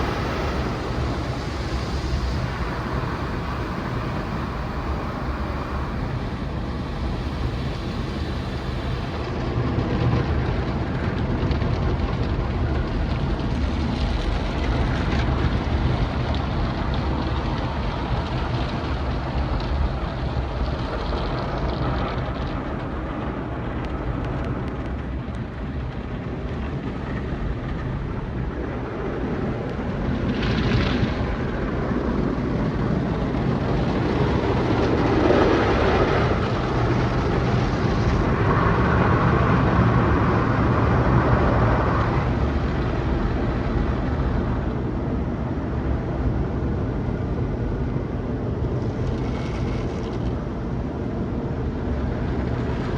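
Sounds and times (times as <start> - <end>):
water spraying and whooshing: 0.0 - 9.3
car wash machinery humming: 0.0 - 9.4.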